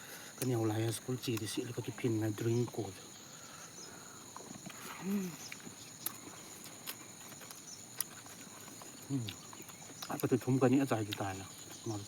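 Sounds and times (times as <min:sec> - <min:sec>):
high insect drone: 0:00.0 - 0:12.0
chewing clicks and smacks: 0:05.4 - 0:10.4.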